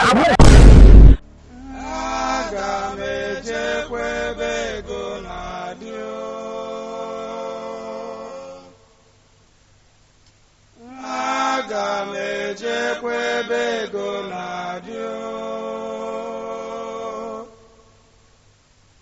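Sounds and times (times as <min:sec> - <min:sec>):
person singing: 0:01.4 - 0:08.7.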